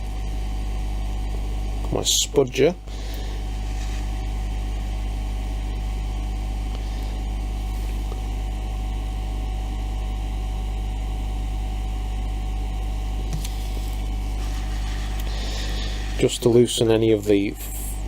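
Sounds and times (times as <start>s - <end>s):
hot air gun running: 13.2s - 16.8s.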